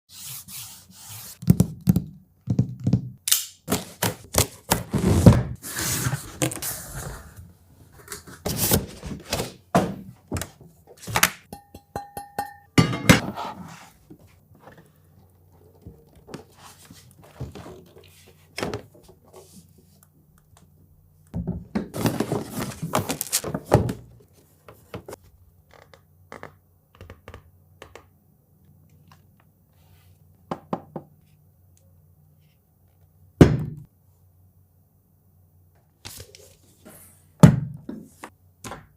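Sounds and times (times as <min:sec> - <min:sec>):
packaging rustling: 0:22.0 - 0:23.7.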